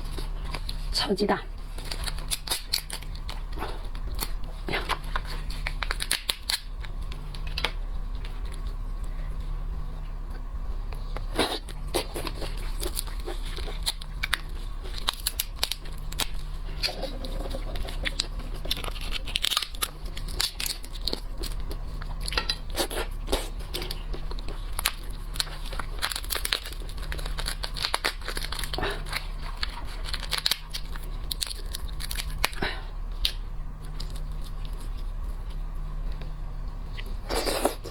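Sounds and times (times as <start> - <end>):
steady low hum: 0.0 - 37.9
shells cracking and crunching: 1.8 - 7.8, 11.9 - 32.6.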